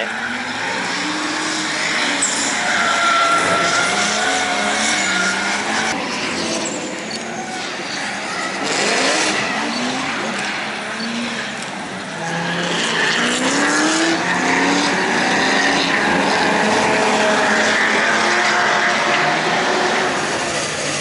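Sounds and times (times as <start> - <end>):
tyre squeal: 0.0 - 11.5
car engines revving: 0.0 - 21.0.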